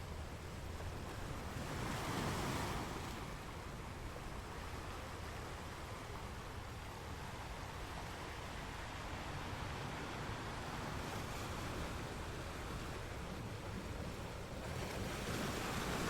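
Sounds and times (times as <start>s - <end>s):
ocean waves washing on shore: 0.0s - 16.0s.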